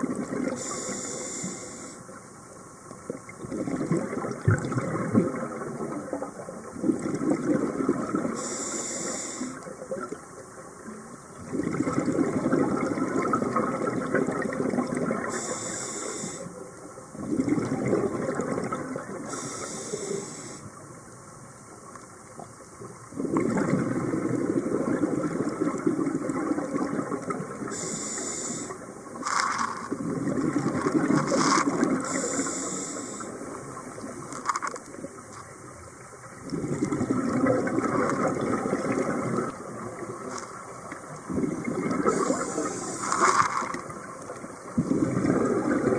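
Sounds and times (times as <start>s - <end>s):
diver breathing through regulator: 0.6s - 2.0s, 8.4s - 9.6s, 15.3s - 16.5s, 19.3s - 20.6s, 27.7s - 29.9s, 31.2s - 33.4s, 42.1s - 43.7s.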